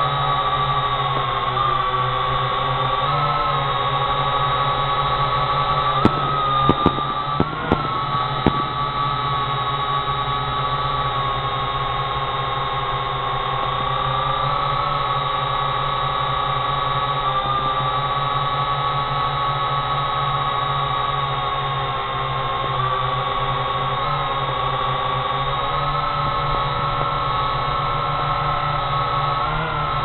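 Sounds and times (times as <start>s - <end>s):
drone propellers whining: 5.7s - 10.5s, 25.7s - 30.0s
firework pops: 6.0s - 10.7s.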